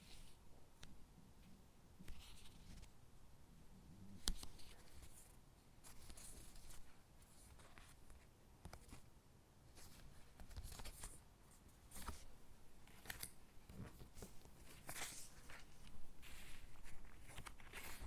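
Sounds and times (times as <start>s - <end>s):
paper crackling and rustling: 9.8s - 11.2s, 12.9s - 18.0s.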